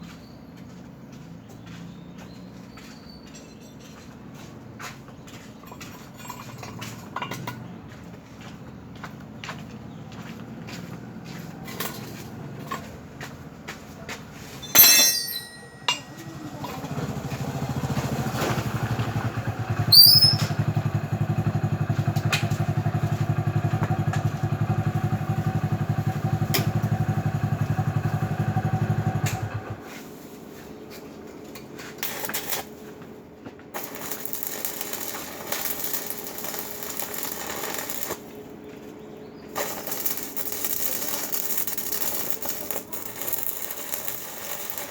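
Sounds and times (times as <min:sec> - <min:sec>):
electric arc welding buzz: 0:33.8 - 0:38.3, 0:39.6 - 0:44.9
loud crackle: 0:33.8 - 0:38.3, 0:39.6 - 0:44.9.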